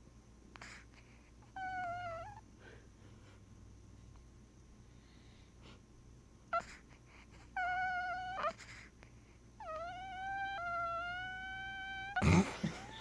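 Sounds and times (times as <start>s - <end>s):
pet whining: 1.4s - 2.5s, 6.5s - 13.0s
pet yelping: 1.6s - 2.4s, 7.6s - 8.8s, 9.6s - 13.0s.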